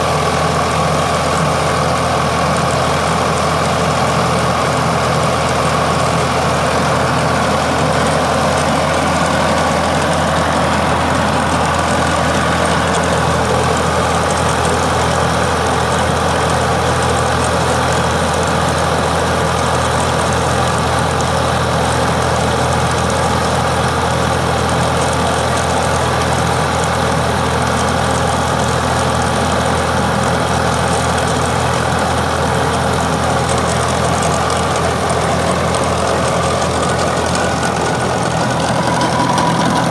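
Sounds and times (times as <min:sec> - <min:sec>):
tractor engine running: 0:00.0 - 0:39.9
chain trencher mechanical din: 0:05.5 - 0:20.4, 0:30.7 - 0:39.9.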